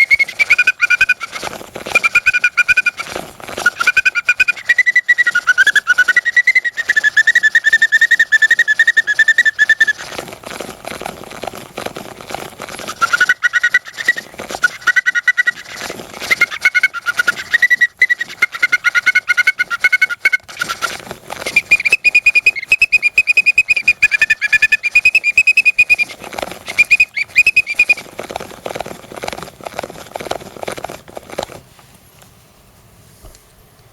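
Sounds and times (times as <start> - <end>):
bird organ whistling melody: 0.0 - 10.2, 12.9 - 28.0.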